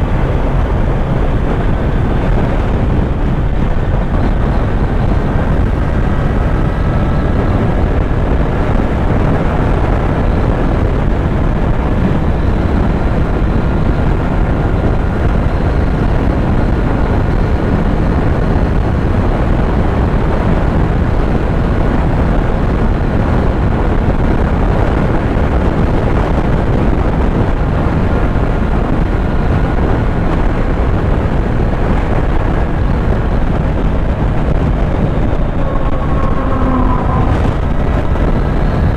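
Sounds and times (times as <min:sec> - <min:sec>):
motorcycle engine running: 0:00.0 - 0:38.9
wind rush on microphone: 0:00.0 - 0:38.9.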